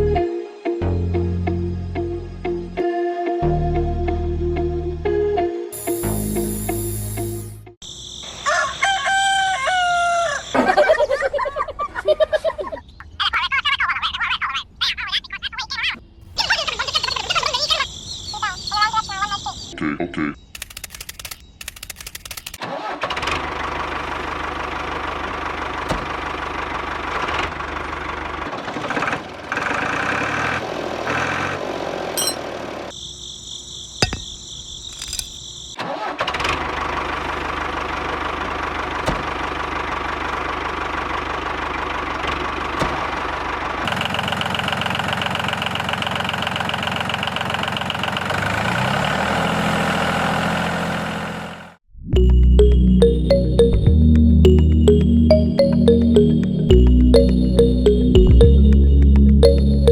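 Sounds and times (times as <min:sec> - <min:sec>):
higher thin tone: 0:52.2 - 0:59.9.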